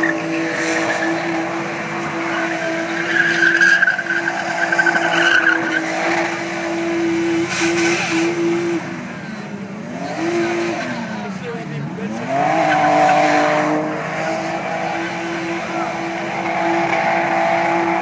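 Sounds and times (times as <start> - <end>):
tyres squealing: 0.0 - 8.5
car engine revving high: 0.0 - 18.0.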